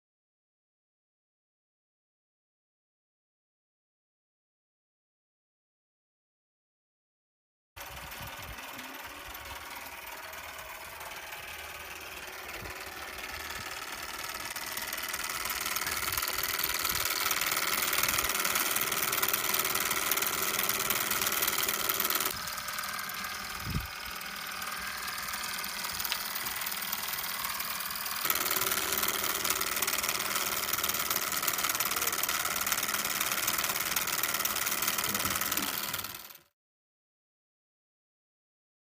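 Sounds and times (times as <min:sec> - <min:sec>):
stirling engine clattering: 0:08.0 - 0:36.2.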